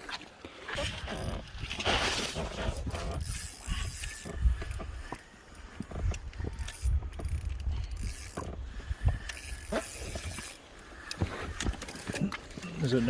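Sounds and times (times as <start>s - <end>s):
wind on microphone: 0.8s - 10.5s
fishing reel clicking and whirring: 2.4s - 12.8s.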